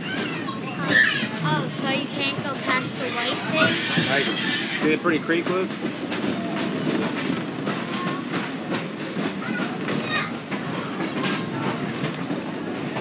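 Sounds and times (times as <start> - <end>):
train car rumbling: 0.0 - 13.0
wheels clicking over rail joints: 0.0 - 13.0.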